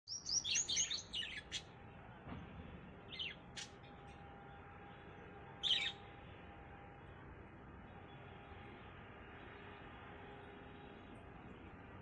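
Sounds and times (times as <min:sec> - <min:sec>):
small bird chirping: 0:00.1 - 0:01.7, 0:03.1 - 0:03.8, 0:05.6 - 0:06.1.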